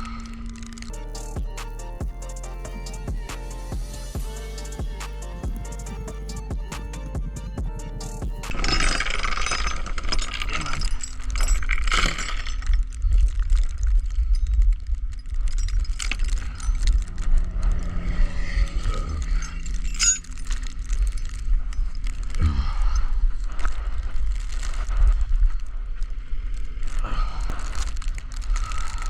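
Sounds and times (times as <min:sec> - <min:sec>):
steady low rumble: 0:00.9 - 0:09.1.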